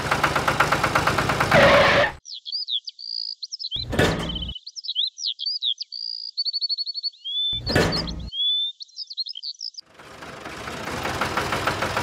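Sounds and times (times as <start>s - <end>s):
birds chirping: 1.6s - 9.9s.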